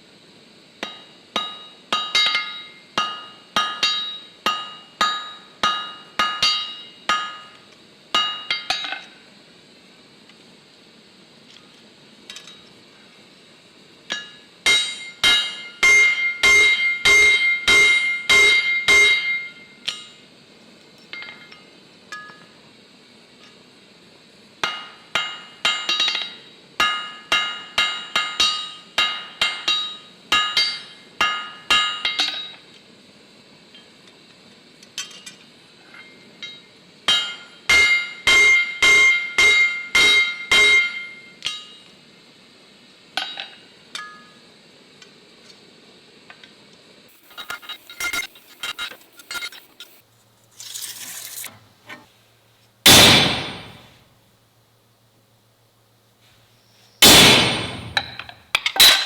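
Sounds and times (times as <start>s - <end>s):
hammer striking steel on anvil: 0.8s - 7.6s, 8.2s - 9.1s, 14.1s - 20.2s, 24.6s - 32.5s, 36.4s - 41.8s, 52.9s - 53.9s, 57.0s - 59.0s.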